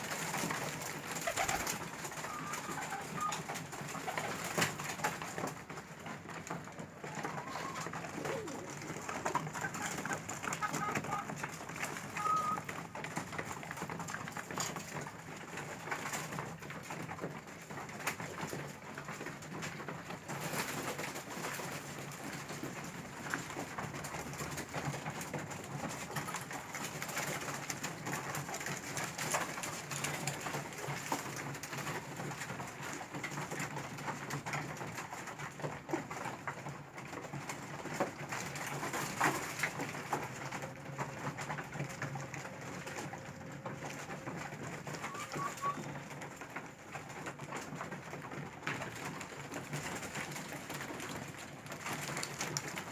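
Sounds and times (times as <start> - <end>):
pigeons cooing: 0.0 - 4.8, 6.9 - 13.0, 38.6 - 46.8.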